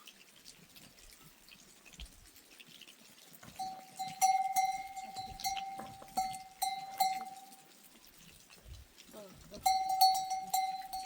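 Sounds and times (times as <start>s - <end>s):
animal bell clanking: 3.5s - 7.7s, 9.5s - 11.0s.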